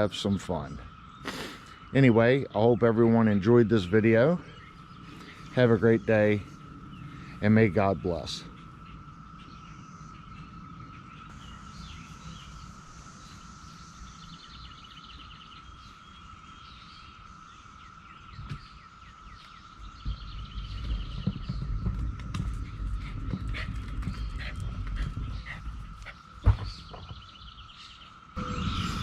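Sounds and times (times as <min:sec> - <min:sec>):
birds chirping and trilling: 0:00.0 - 0:29.0
low rumble: 0:19.7 - 0:27.3, 0:28.3 - 0:29.0
steady high tone: 0:28.4 - 0:29.0.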